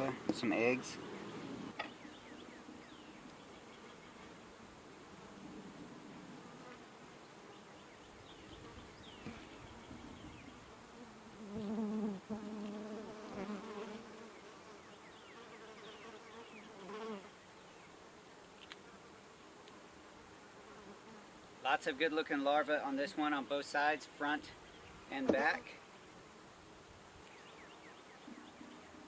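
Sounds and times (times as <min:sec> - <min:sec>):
bees buzzing: 0:00.0 - 0:17.3.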